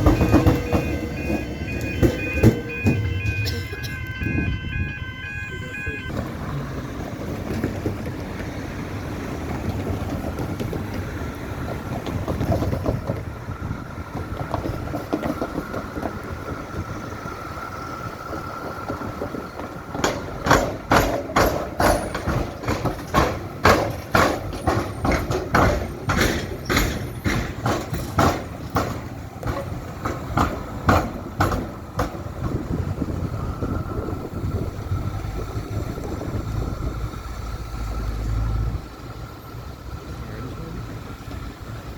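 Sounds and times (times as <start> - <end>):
rail vehicle rumbling past: 0.0 - 41.9
wheels clacking over crossing: 0.0 - 41.9.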